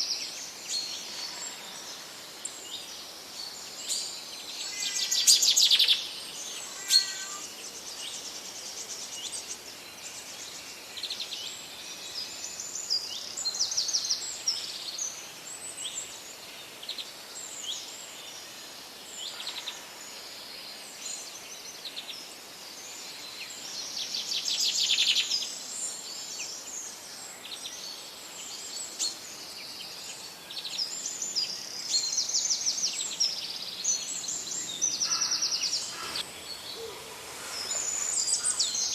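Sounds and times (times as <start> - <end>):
birds chirping and trilling: 0.0 - 15.2, 27.4 - 38.9.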